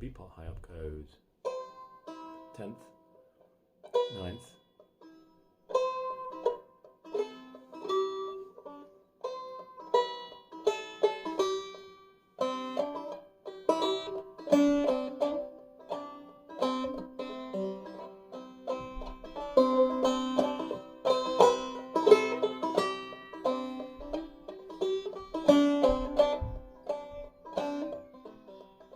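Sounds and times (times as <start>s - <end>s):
banjo plucked notes: 0.1s - 28.9s.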